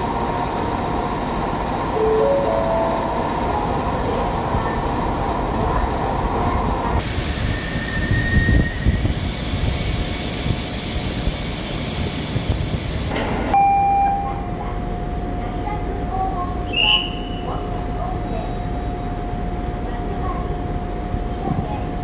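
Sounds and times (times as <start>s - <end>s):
electric train rumbling: 0.0s - 22.0s.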